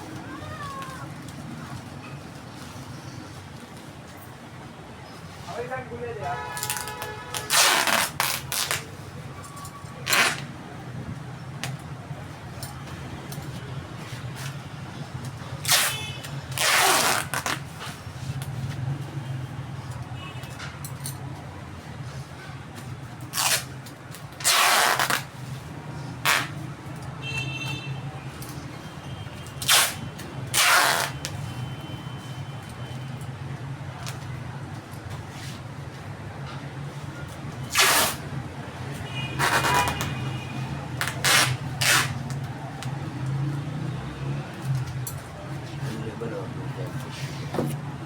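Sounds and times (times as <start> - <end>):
packing material rasping: 6.6 - 8.9, 10.0 - 10.5, 15.6 - 18.0, 23.3 - 25.4, 29.6 - 31.4, 37.7 - 38.2, 41.0 - 42.4.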